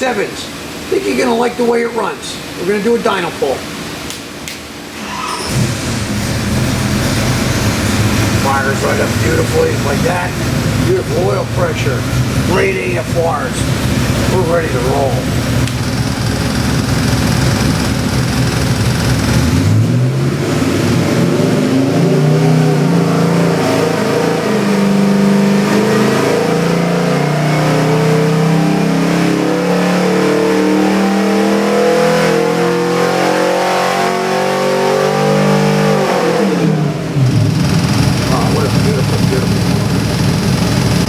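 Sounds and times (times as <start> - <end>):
engine revving on a dyno: 5.0 - 41.0.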